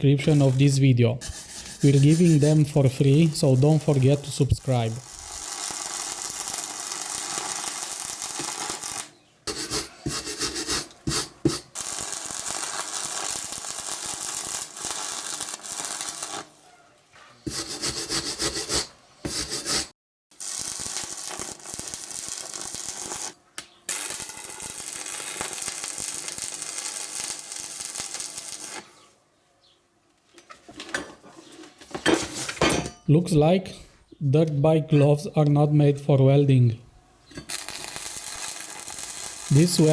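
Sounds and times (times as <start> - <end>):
arc welding crackling hiss: 0.0 - 16.6, 17.5 - 29.1, 37.3 - 39.9.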